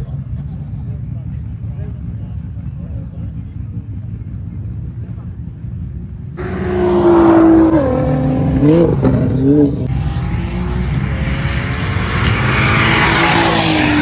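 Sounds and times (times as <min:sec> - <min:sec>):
race car engines passing: 0:06.4 - 0:14.0
tyre noise: 0:06.4 - 0:14.0.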